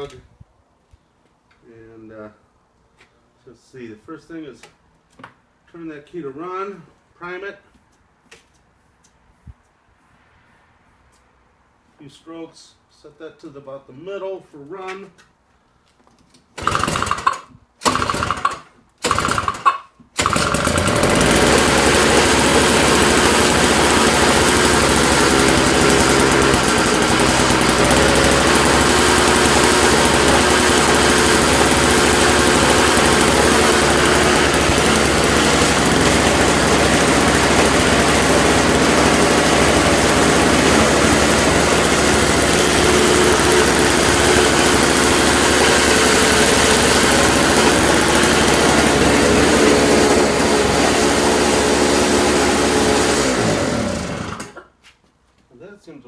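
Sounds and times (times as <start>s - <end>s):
snowblower engine cranking and running: 16.6s - 54.7s.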